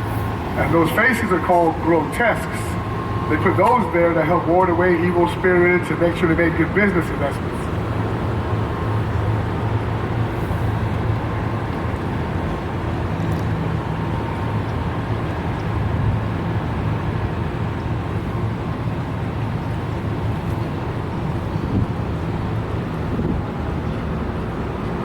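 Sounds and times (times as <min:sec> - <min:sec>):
rushing noise: 0:00.0 - 0:11.6
boat motor humming: 0:00.0 - 0:25.0.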